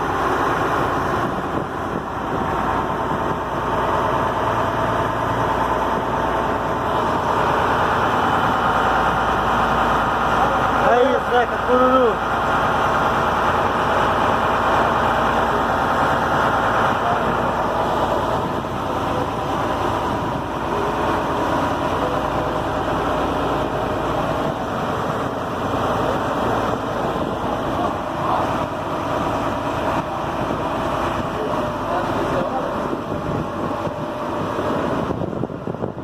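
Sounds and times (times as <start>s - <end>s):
boat engine droning: 0.0s - 36.0s
water wash: 0.0s - 36.0s
wind noise: 0.5s - 9.6s, 32.8s - 36.0s.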